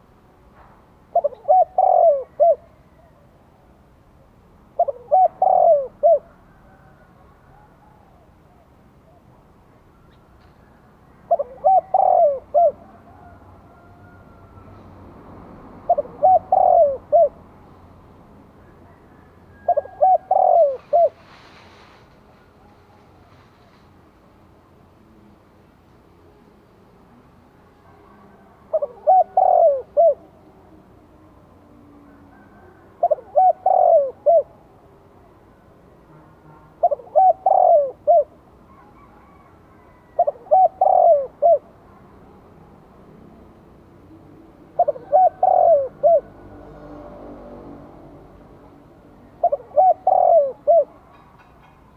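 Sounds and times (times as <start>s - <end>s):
dove cooing: 1.1s - 3.3s, 4.7s - 14.8s, 15.8s - 17.5s, 18.6s - 23.5s, 27.8s - 30.8s, 31.7s - 34.7s, 36.7s - 42.0s, 44.0s - 47.0s, 48.7s - 51.5s.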